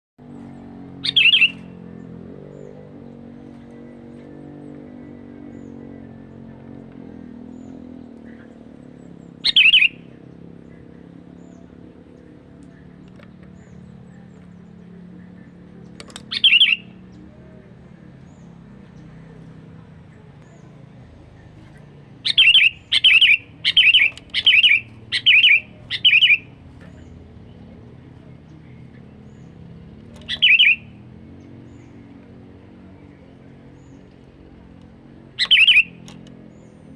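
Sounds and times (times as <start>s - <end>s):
steady low hum: 0.3s - 36.9s
bird warbling call: 1.0s - 2.0s, 9.4s - 11.7s, 15.4s - 17.1s, 22.2s - 36.8s.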